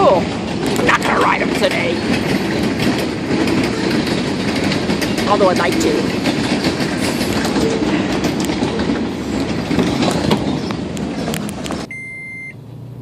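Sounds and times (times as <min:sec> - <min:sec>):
freight train rumbling past: 0:00.0 - 0:11.9
wheels clacking over rail joints: 0:00.0 - 0:11.9
car electronic chime beeping: 0:11.9 - 0:12.6.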